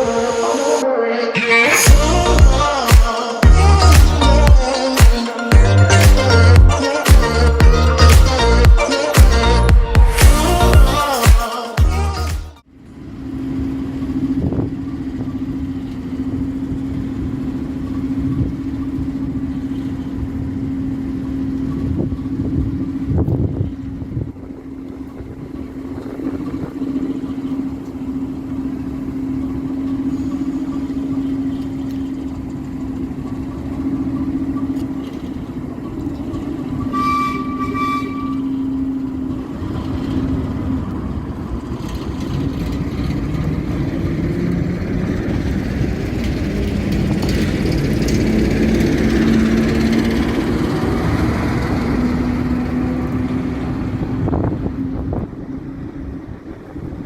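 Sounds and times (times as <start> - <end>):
diesel locomotive engine running: 1.7 - 11.3, 11.9 - 57.0
locomotive horn toot: 36.3 - 39.0.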